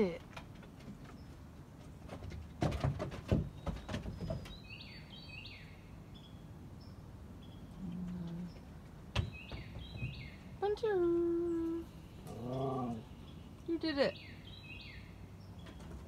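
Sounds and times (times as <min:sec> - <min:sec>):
songbird chirping: 0:00.0 - 0:02.3, 0:03.2 - 0:16.0
knocks and thumps: 0:02.0 - 0:04.6, 0:09.1 - 0:10.2.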